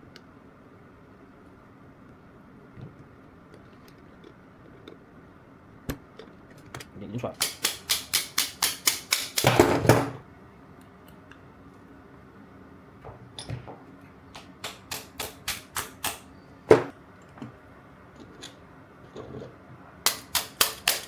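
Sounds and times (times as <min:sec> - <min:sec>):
hard knock: 0:16.7 - 0:16.9.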